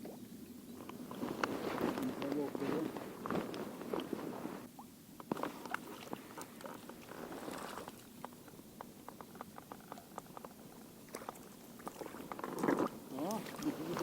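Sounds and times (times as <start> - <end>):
faint rustling: 0.7 - 14.0
small irregular clicks: 5.2 - 14.0.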